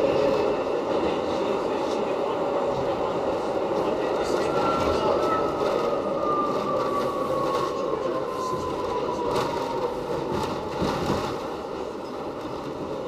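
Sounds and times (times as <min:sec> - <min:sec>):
subway train rumbling and rattling: 0:00.0 - 0:13.0.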